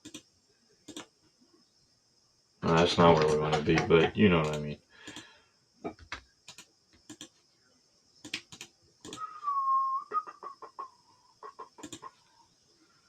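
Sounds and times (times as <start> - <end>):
keyboard and mouse clicks: 0.0 - 0.3, 0.9 - 1.1, 2.7 - 5.3, 5.9 - 7.4, 8.2 - 9.2, 11.8 - 12.1
chicken calling and clucking: 9.2 - 12.4.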